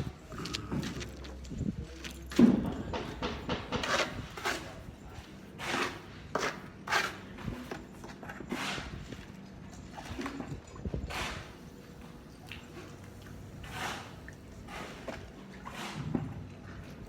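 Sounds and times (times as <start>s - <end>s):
hand tools knocking and scraping: 2.3s - 9.0s.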